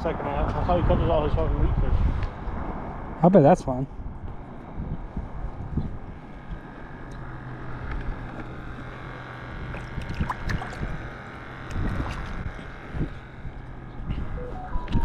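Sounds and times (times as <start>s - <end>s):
wind on microphone: 0.4s - 3.2s, 3.9s - 7.0s, 9.5s - 15.0s
low engine hum: 3.9s - 15.0s.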